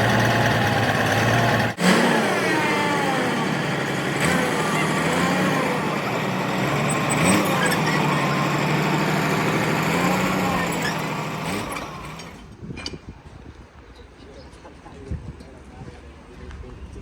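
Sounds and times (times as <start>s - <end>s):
large vehicle engine running: 0.0s - 12.6s.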